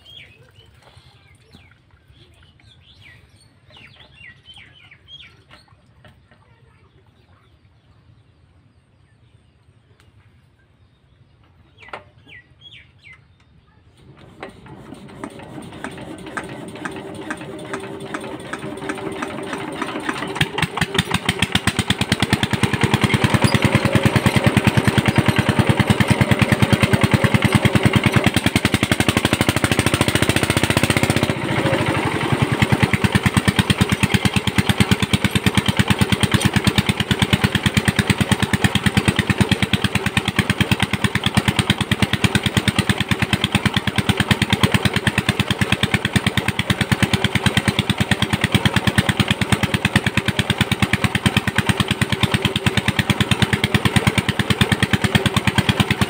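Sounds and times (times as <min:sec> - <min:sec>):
diesel engine chugging: 0:00.0 - 0:08.7, 0:11.1 - 0:56.0.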